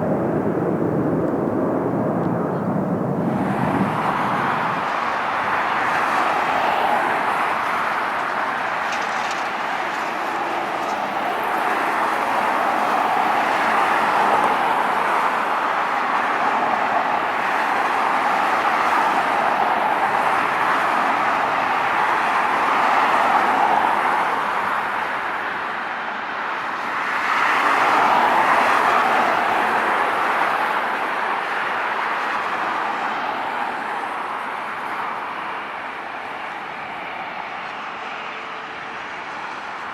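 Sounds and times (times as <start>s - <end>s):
jet engine roar: 0.0s - 7.8s.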